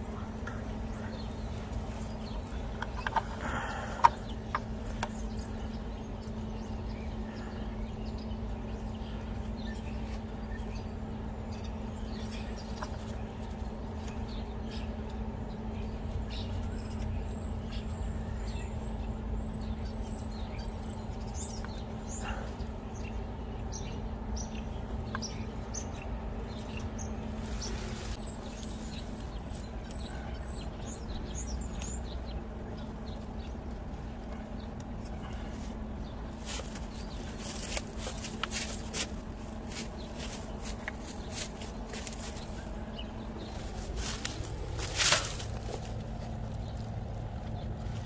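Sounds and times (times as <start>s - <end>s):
birds chirping: 0.0s - 48.0s
steady low hum: 0.0s - 48.0s.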